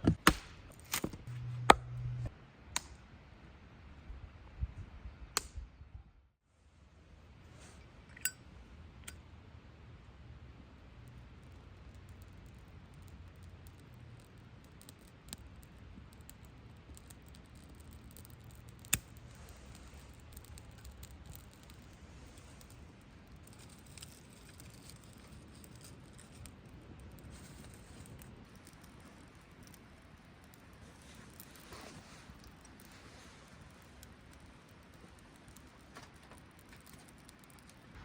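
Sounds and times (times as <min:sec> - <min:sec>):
campfire crackling: 0:08.5 - 0:38.0
fire popping: 0:10.6 - 0:38.0.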